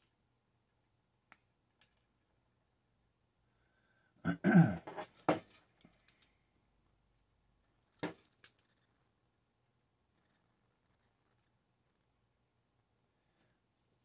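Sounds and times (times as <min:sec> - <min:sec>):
clatter of parts: 0:04.8 - 0:06.4.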